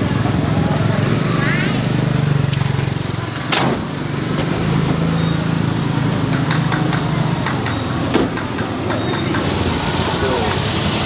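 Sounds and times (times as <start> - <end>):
small engine humming: 9.2 - 11.0.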